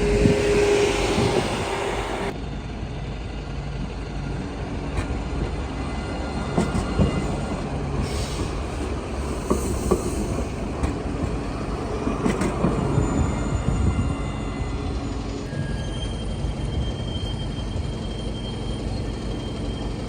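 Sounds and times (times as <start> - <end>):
high squeal of wheels on track: 0.0 - 3.1, 4.2 - 20.0
tram rumbling on rails: 0.0 - 20.0.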